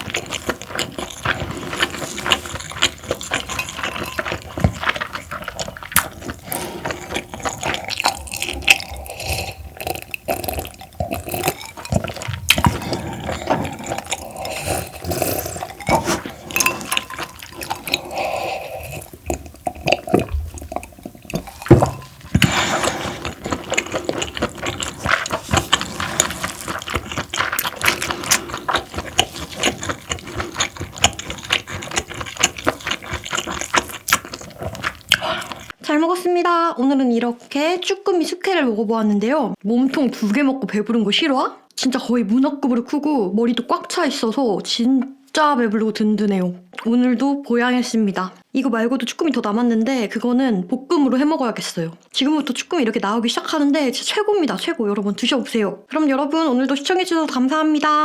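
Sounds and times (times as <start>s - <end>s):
wet chewing: 0.0s - 35.8s.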